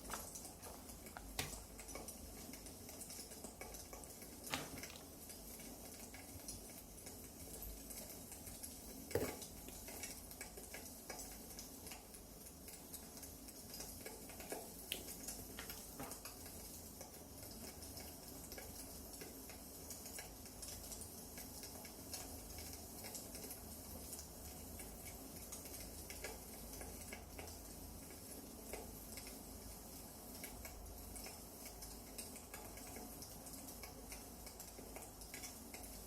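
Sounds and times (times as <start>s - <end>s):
wood fire crackling: 0.0s - 17.0s
soft steady hiss: 0.0s - 36.0s.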